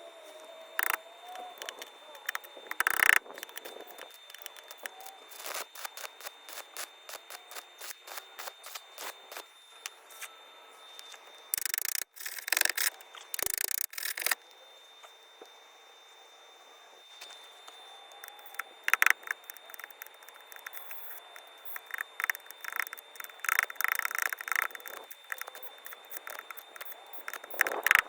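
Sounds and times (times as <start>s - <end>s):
harsh crackling noise bursts: 0.8s - 1.0s, 1.6s - 7.4s, 11.6s - 14.4s, 18.2s - 28.0s.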